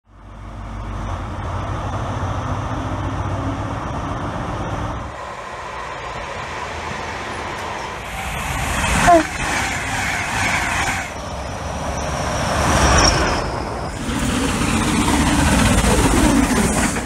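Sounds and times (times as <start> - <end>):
train wheels rushing on rails: 0.6 - 17.0.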